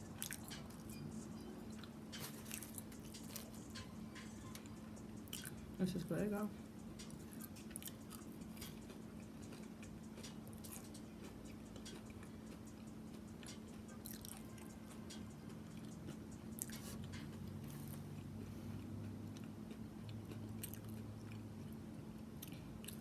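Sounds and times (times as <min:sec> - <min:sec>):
faint steady hum: 0:00.0 - 0:23.0
chewing with wet mouth clicks: 0:00.2 - 0:00.9, 0:05.3 - 0:05.6, 0:07.0 - 0:14.8, 0:15.4 - 0:23.0.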